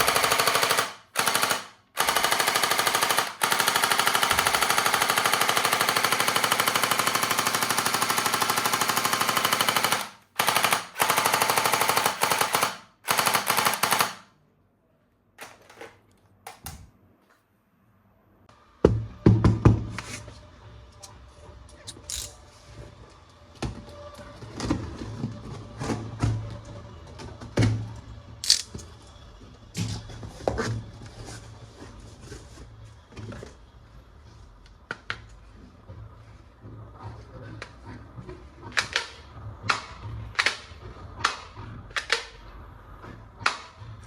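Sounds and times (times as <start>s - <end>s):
plastic toy clicks and rattles: 22.0s - 22.4s, 28.4s - 28.8s.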